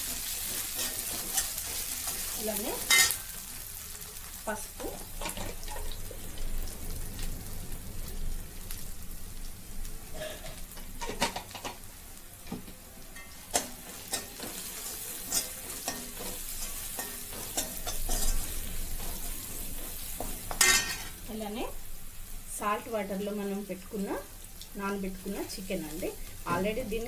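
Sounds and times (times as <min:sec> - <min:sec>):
metal spoon scraping a pan: 0:00.0 - 0:03.4, 0:13.2 - 0:21.2
onions sizzling in oil: 0:00.0 - 0:27.0.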